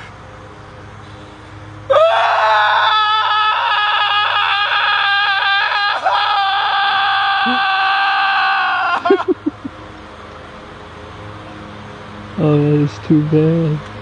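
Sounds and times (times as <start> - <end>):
person screaming: 1.9 - 9.3
low steady hum: 8.8 - 14.0.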